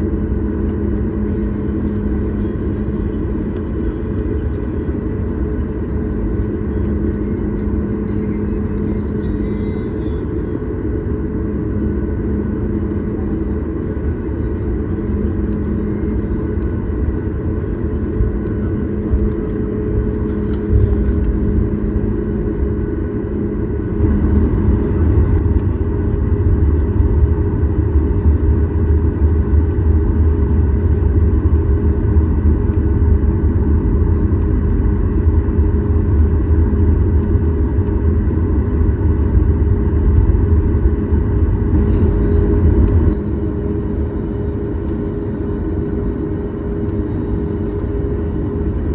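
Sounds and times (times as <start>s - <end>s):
aircraft rolling rumble: 0.0s - 48.9s
jet engines humming: 0.0s - 48.9s.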